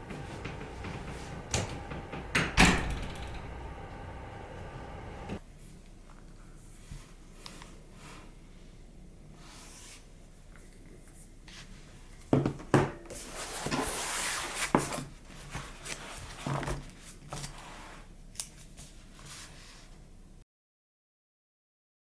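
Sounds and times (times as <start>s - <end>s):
sharp clicks and knocks: 0.0s - 5.4s.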